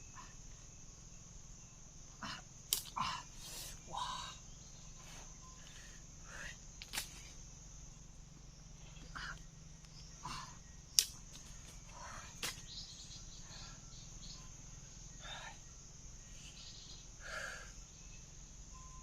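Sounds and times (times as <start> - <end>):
insects buzzing: 0.0 - 19.0
sharp clicks: 11.0 - 11.5.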